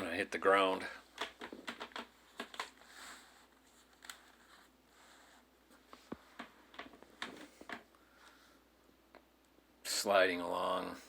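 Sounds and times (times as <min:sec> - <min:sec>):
helmet handling clicks and rustles: 0:01.1 - 0:02.9.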